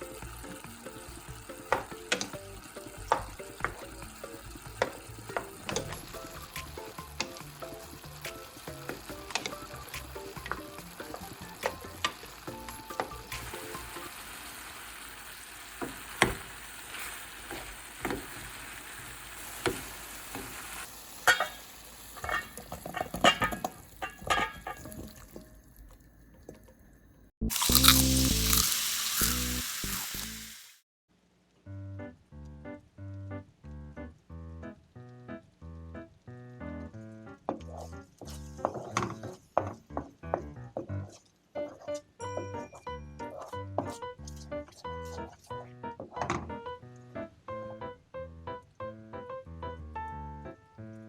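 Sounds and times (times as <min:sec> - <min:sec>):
food sizzling in a pan: 0:00.0 - 0:26.0, 0:27.4 - 0:30.8.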